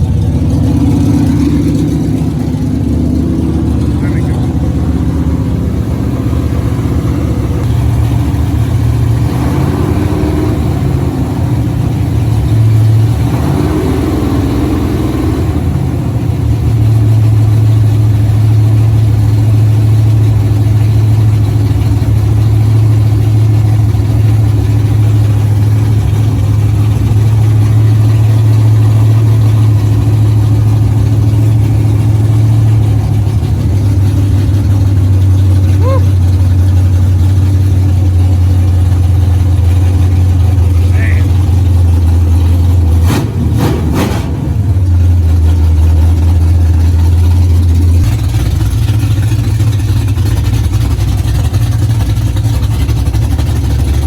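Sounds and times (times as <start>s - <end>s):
car engine revving and running: 0.0s - 54.0s.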